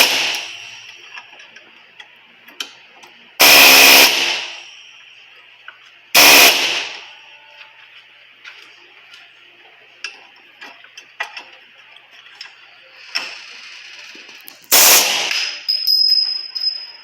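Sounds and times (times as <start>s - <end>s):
power tool bursts: 0.0s - 0.8s, 3.4s - 4.6s, 6.2s - 7.0s, 14.7s - 15.6s.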